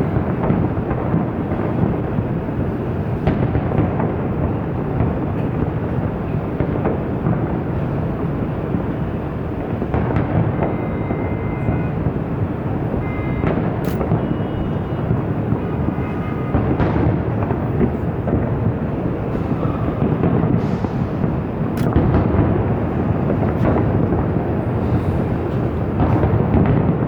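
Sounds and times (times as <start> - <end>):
fireworks rolling rumble: 0.0 - 27.0
sharp firework crack: 13.4 - 27.0.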